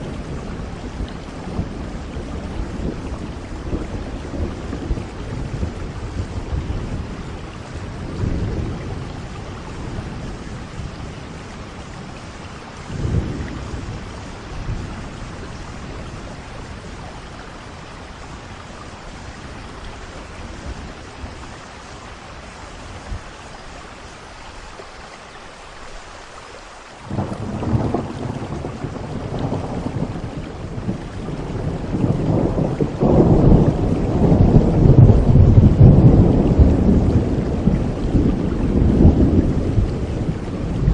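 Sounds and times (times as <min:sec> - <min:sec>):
low thunder rumbles: 0:00.0 - 0:23.7, 0:27.1 - 0:40.9
steady rain: 0:00.0 - 0:40.9
thunderclap: 0:27.1 - 0:40.9.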